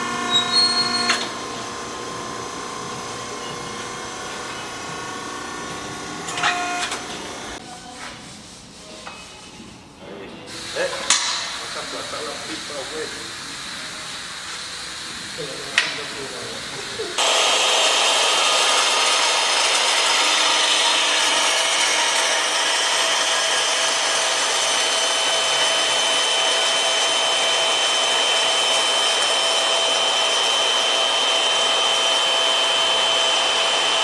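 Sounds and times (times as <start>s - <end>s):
power tool cutting metal: 0.0s - 7.6s, 10.5s - 34.0s.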